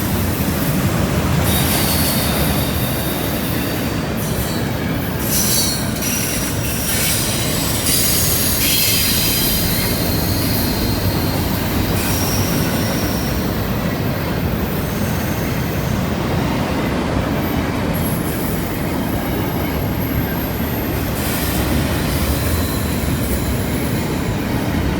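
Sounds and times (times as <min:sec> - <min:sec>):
train wheels rumbling on rail: 0:00.0 - 0:24.9
wheel flange squeal: 0:01.4 - 0:16.6.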